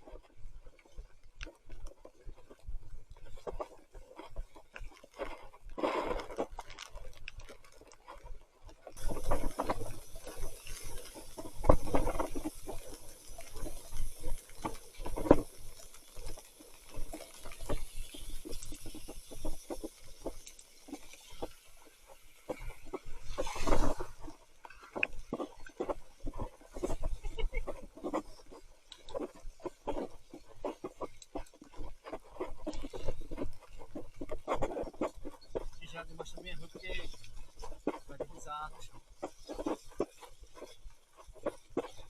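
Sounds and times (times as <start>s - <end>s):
steady high hiss: 9.0s - 24.3s.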